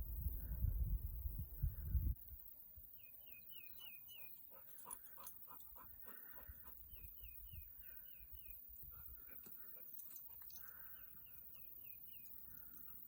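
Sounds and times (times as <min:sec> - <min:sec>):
wind rumbling on microphone: 0:00.0 - 0:02.4
small bird chirping: 0:02.9 - 0:13.0
dog panting: 0:04.5 - 0:06.8.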